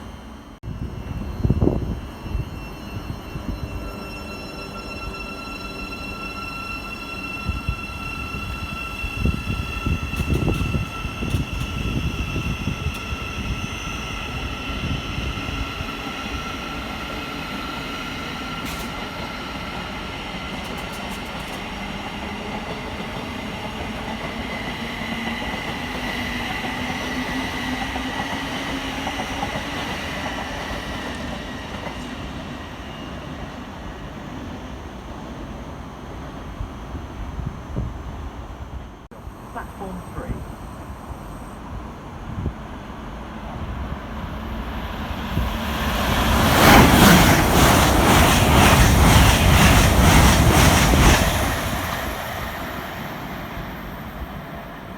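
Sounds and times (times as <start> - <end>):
train high-pitched whine: 0.0 - 54.9
train wheels rumbling and knocking: 7.2 - 32.3, 42.4 - 54.8.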